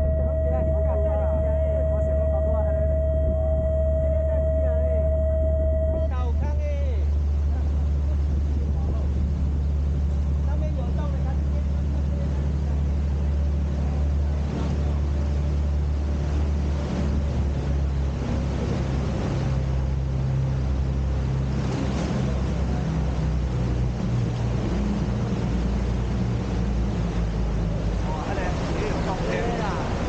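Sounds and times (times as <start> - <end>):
boat engine low drone: 0.0 - 30.0
hiss of water and wind: 6.4 - 30.0.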